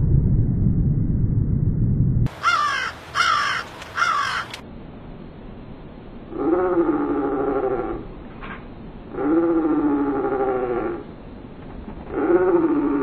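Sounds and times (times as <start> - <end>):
loud low rumbling noise: 0.0 - 3.2
long evenly pitched animal call: 2.3 - 4.5, 6.3 - 8.2, 9.1 - 11.2, 12.1 - 13.0
harsh cawing bird calls: 2.3 - 4.6.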